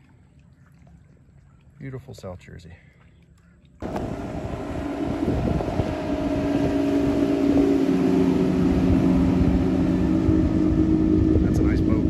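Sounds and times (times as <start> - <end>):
motorboat engine running: 3.8 - 12.0.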